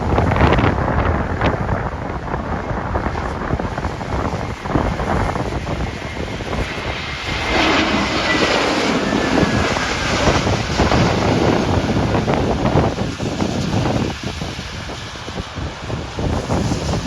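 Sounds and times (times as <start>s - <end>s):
jet engines roaring overhead: 0.0s - 17.0s
wind buffeting microphone: 0.0s - 17.0s
high engine whine: 2.9s - 15.2s.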